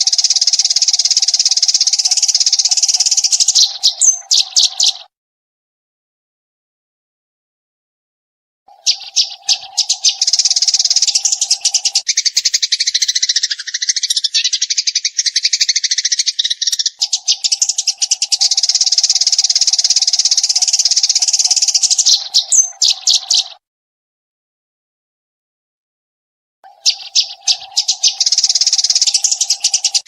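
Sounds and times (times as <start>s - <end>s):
sparrow chirping rapidly: 0.0s - 5.1s, 8.7s - 23.6s, 26.7s - 30.0s.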